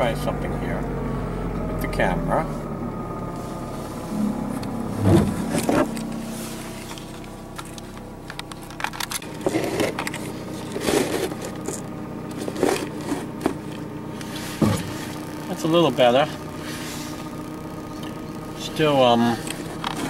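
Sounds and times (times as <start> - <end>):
car engine hum: 0.0 - 20.0
camera knocks and scrapes: 5.0 - 6.0, 14.4 - 15.1.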